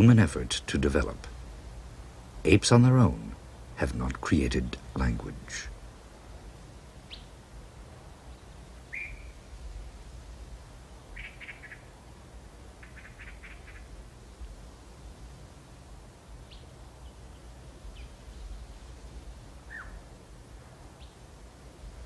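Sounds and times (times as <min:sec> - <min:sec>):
birds chirping: 0:00.0 - 0:06.1, 0:07.0 - 0:07.5, 0:08.1 - 0:09.5, 0:11.0 - 0:12.0, 0:12.7 - 0:14.5, 0:16.3 - 0:21.4
steady low hum: 0:00.0 - 0:22.0.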